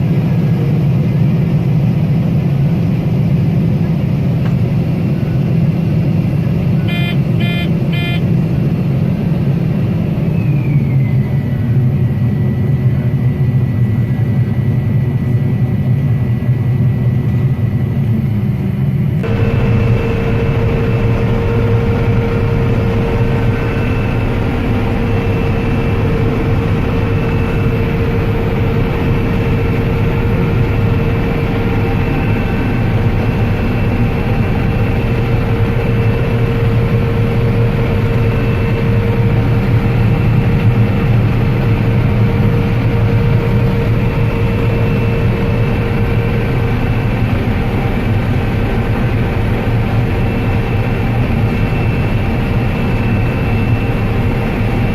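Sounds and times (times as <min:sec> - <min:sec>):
combine harvester engine drone: 0:00.0 - 0:54.9
steady tone: 0:06.8 - 0:08.2.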